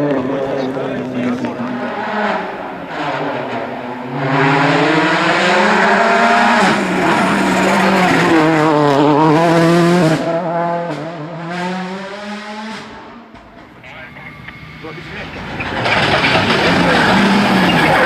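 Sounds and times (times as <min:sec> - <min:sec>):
rally car engine passing at high revs: 0:00.0 - 0:18.0.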